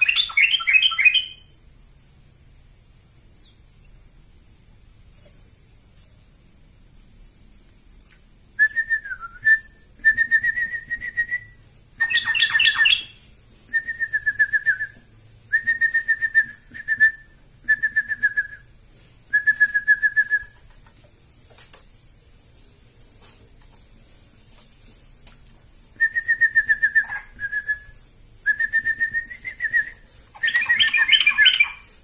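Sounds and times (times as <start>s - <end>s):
bird singing whistled notes: 0.0s - 1.5s, 8.6s - 18.7s, 19.3s - 20.6s, 26.0s - 32.0s.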